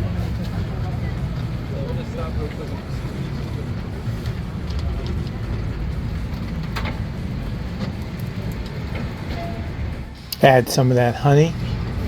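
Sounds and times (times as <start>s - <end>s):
city street traffic rumble: 0.0s - 12.0s.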